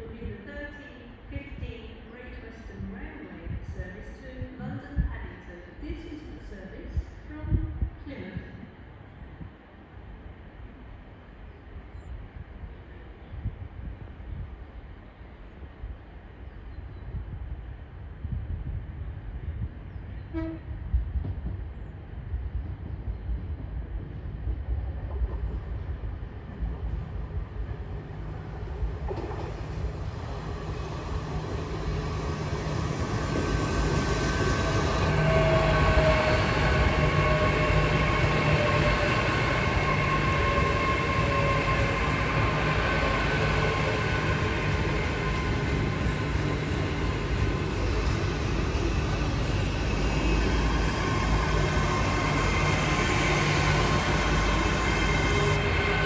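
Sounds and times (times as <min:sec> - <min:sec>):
train rumble: 0:00.0 - 0:56.0
train whine: 0:20.1 - 0:56.0.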